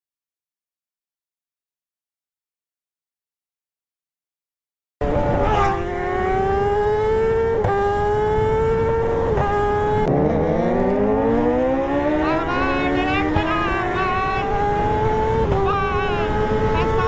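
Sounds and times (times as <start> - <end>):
engine accelerating through gears: 5.0 - 17.0.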